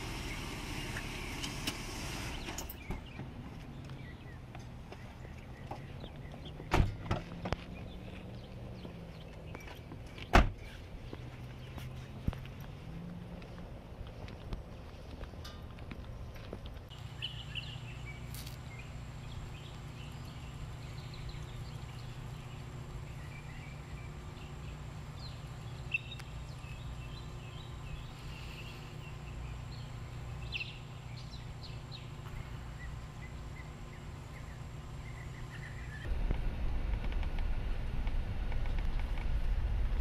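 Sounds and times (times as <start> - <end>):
low hum: 10.8 - 40.0
bird chirps: 16.9 - 36.1.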